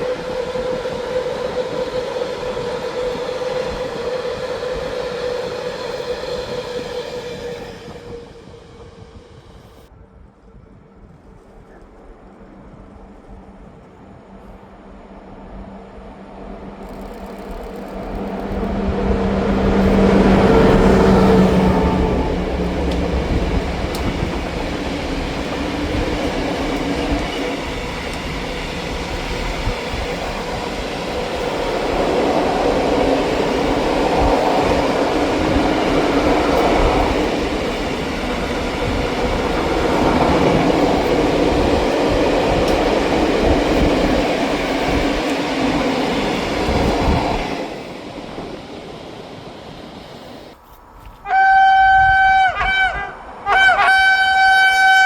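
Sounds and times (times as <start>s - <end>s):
train wheels rumbling on rails: 0.0s - 52.5s.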